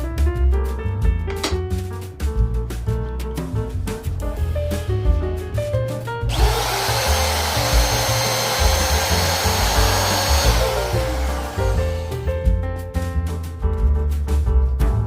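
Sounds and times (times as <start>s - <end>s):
power tool high whine: 6.3s - 12.3s.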